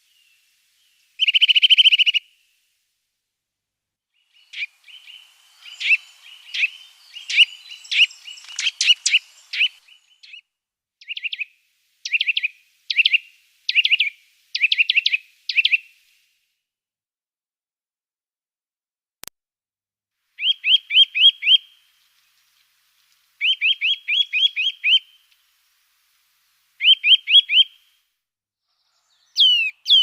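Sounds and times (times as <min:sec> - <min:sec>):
songbird chirping: 0:00.0 - 0:02.7, 0:04.1 - 0:16.2, 0:20.4 - 0:28.0, 0:28.7 - 0:30.0.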